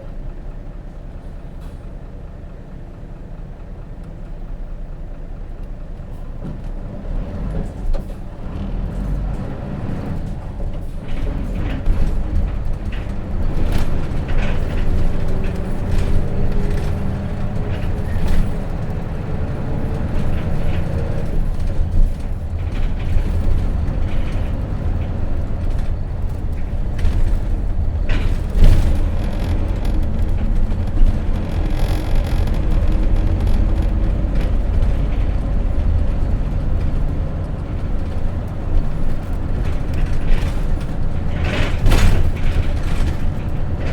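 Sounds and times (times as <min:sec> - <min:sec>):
bus diesel engine running: 0:00.0 - 0:43.9
cabin rattles and clicks: 0:10.4 - 0:43.9.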